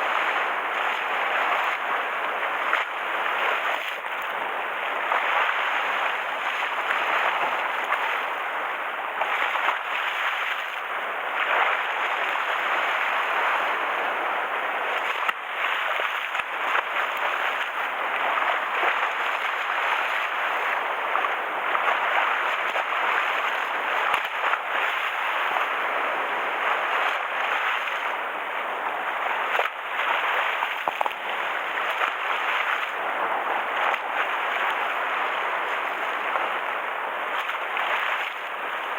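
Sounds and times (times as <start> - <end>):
waves splashing against shore: 0.0 - 38.9.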